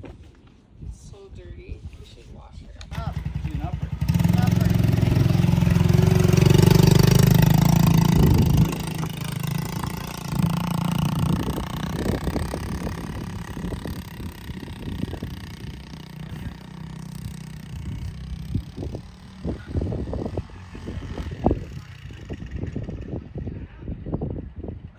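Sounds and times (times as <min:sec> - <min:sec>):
dirt bike engine: 0:02.9 - 0:24.9
low thumps: 0:03.0 - 0:21.7.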